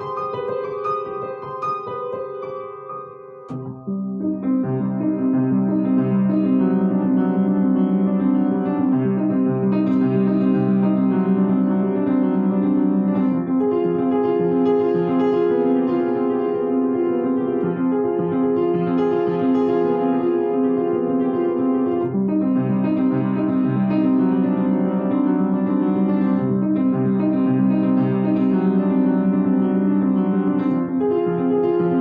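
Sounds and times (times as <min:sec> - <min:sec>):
solo piano piece: 0:00.0 - 0:32.0.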